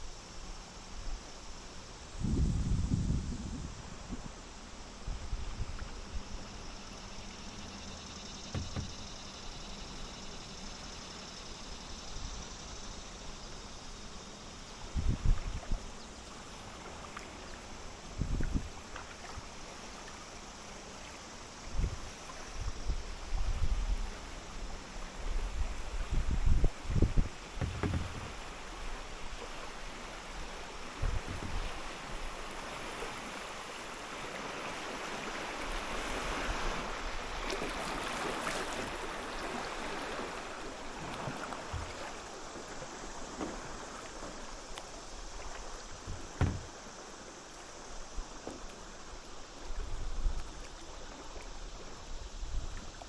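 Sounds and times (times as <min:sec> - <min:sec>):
rushing water: 0:03.8 - 0:53.0
water splashing around kayak: 0:03.8 - 0:53.0
low thumps: 0:08.5 - 0:09.2, 0:26.5 - 0:28.4, 0:46.0 - 0:46.8.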